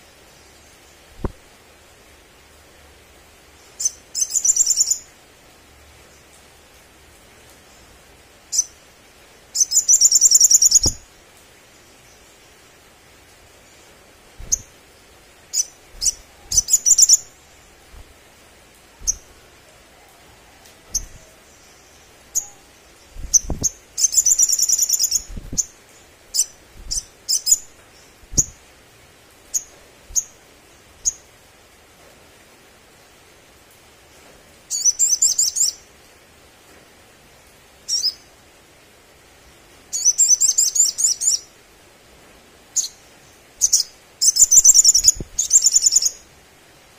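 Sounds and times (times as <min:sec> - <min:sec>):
bird chirps and trills: 0:03.6 - 0:05.1, 0:08.5 - 0:11.1, 0:13.6 - 0:18.3, 0:19.0 - 0:19.6, 0:20.8 - 0:28.7, 0:34.7 - 0:35.8, 0:39.9 - 0:41.5, 0:42.8 - 0:46.3.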